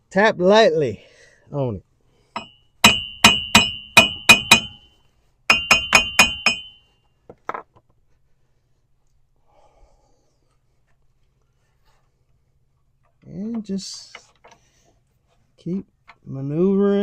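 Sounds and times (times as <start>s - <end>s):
hammer tapping on metal: 2.4s - 4.8s, 5.5s - 6.8s.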